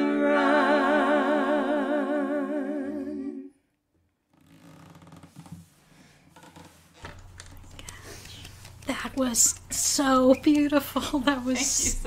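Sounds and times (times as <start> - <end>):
women singing in harmony: 0.0 - 3.6.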